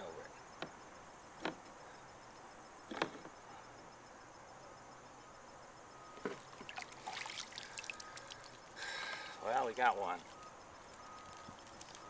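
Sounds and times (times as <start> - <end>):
faint insect trilling: 5.2 - 12.0.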